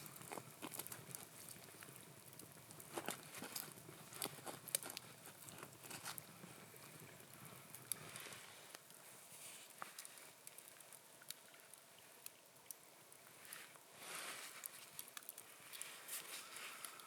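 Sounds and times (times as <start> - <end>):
small clicks and ticks: 0.0 - 9.0, 9.7 - 13.9, 14.6 - 17.0
soft rustling: 7.9 - 10.7, 13.3 - 17.0.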